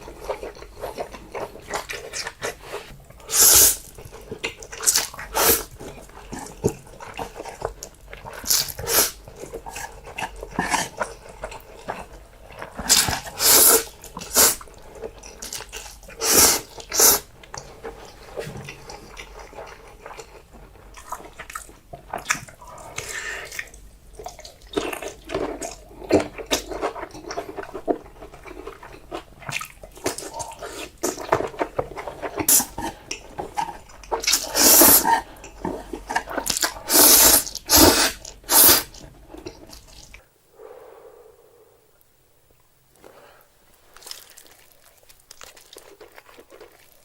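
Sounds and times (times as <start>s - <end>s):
chewing: 0.0s - 41.5s, 43.0s - 47.0s
slurping noodles: 0.6s - 7.6s, 8.2s - 14.7s, 15.4s - 20.5s, 30.1s - 41.5s.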